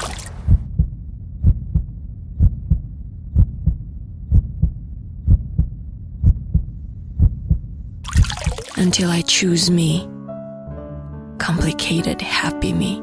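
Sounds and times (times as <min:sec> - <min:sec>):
heartbeat thumps: 0:00.4 - 0:08.4.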